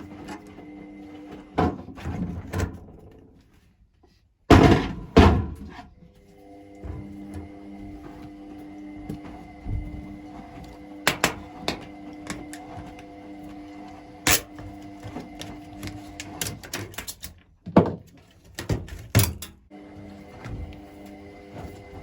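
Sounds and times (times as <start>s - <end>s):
tools clicking and knocking: 15.8s - 19.6s.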